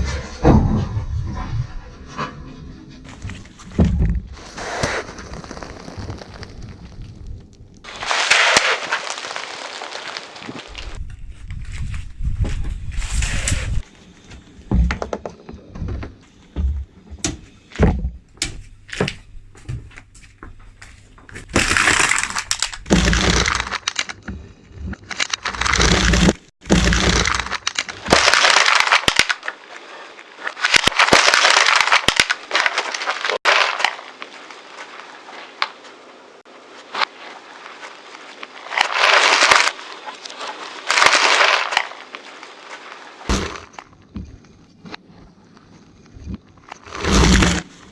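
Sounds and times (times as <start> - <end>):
car tyre crushing brittle objects: 3.1 - 11.0, 21.3 - 24.3, 25.0 - 35.8, 36.9 - 44.0, 46.6 - 47.9.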